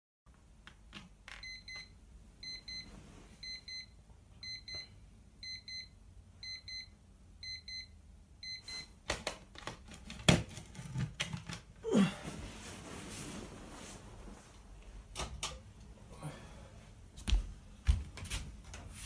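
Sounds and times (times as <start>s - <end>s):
digital alarm clock double beeps: 1.4s - 2.8s, 3.4s - 8.9s.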